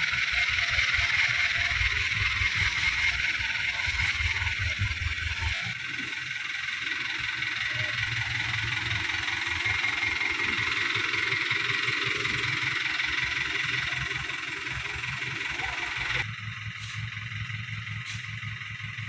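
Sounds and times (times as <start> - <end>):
diesel truck engine running: 0.0 - 19.0.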